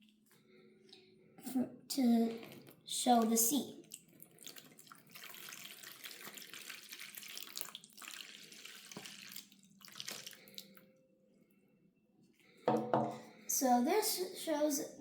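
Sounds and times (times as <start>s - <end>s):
water pouring into basin: 2.4s - 10.8s
water trickling: 2.4s - 10.8s.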